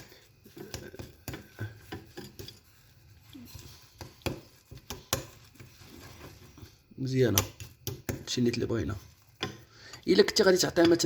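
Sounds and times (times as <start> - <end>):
utensil scraping a pot: 0.0 - 11.0.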